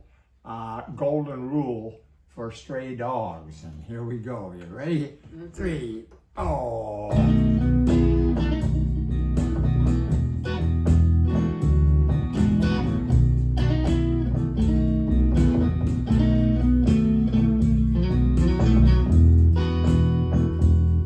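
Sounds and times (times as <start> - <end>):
sustained low bass notes: 6.4 - 21.0
guitar strumming: 7.1 - 21.0.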